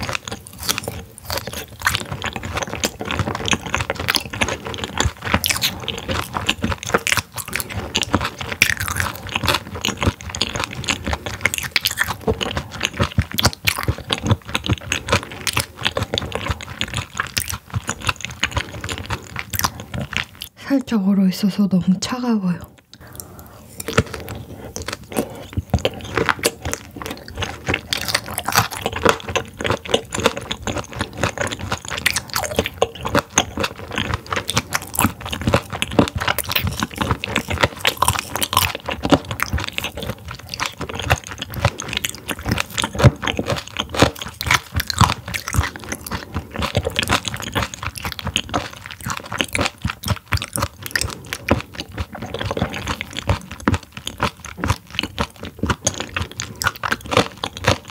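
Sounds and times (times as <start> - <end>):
crunchy chewing: 0.0 - 20.6, 22.7 - 57.9
wet mouth clicks: 22.6 - 57.9.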